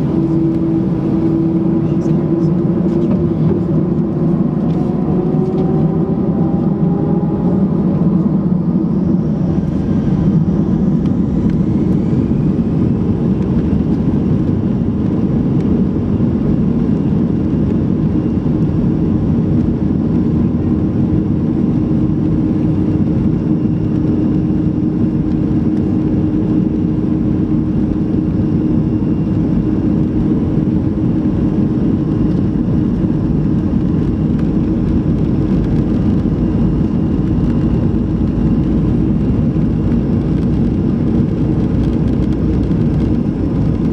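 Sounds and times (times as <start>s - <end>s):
faint rising whine: 0.0s - 14.8s
jet engine and airflow drone: 0.0s - 43.9s.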